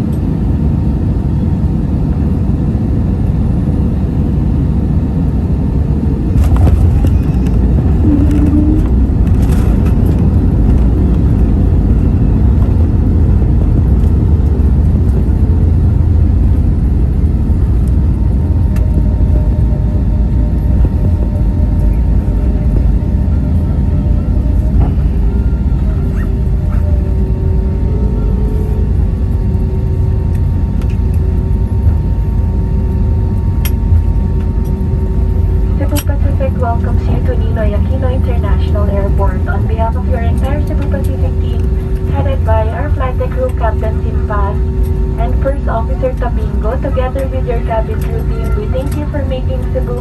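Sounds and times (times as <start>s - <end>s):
airliner cabin engine rumble: 0.0s - 50.0s.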